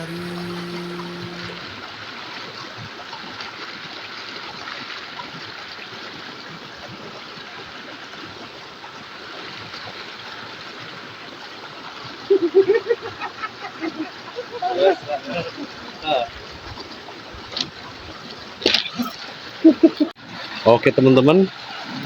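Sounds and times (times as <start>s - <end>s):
loud voice: 0.0s - 1.7s
river water rushing and babbling: 0.0s - 2.1s.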